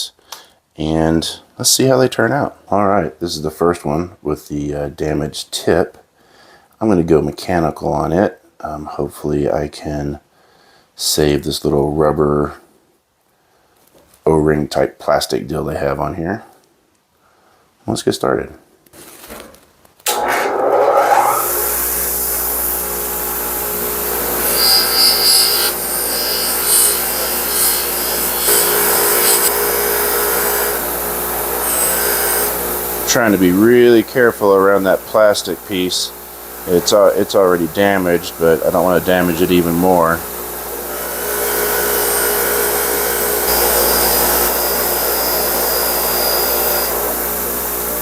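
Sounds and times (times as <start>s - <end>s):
bench grinder abrading metal: 20.1s - 48.0s
power tool running: 20.1s - 48.0s.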